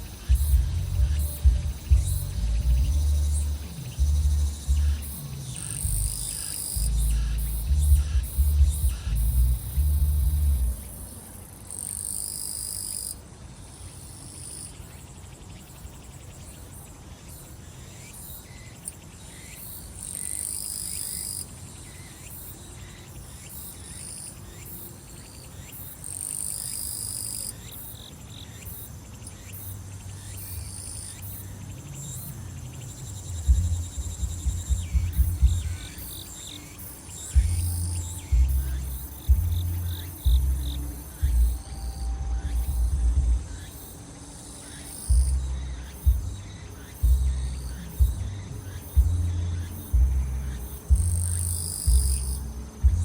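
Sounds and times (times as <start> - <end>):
distant thumping bass beat: 0.0 - 10.9, 33.3 - 36.1, 37.3 - 43.8, 45.1 - 53.0
crickets chirping: 0.0 - 53.0.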